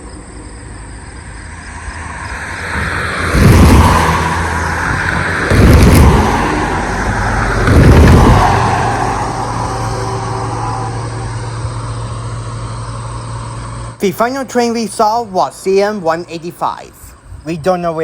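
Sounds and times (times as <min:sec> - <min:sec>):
diesel locomotive rumble: 0:00.0 - 0:18.0
locomotive air horn blasts: 0:09.2 - 0:12.0.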